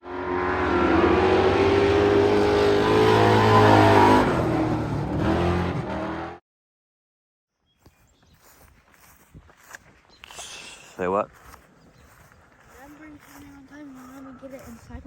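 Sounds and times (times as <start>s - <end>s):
race car engine revving: 0.0s - 6.4s.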